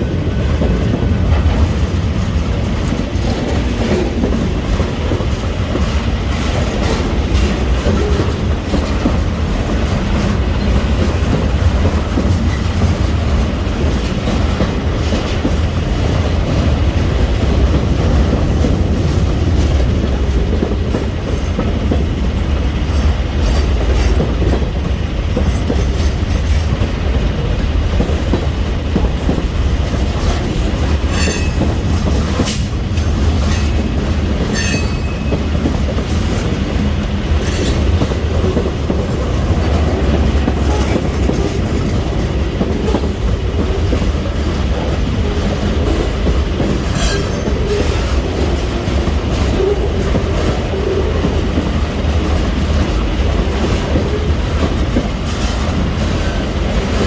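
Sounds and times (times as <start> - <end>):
train wheels rumbling on rail: 0.0 - 57.0
high wheel squeals: 31.1 - 31.7.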